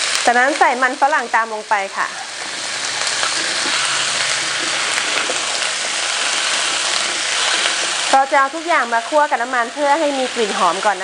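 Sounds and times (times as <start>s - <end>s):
food sizzling in a wok: 0.0s - 11.0s
spatula stirring: 1.9s - 8.6s.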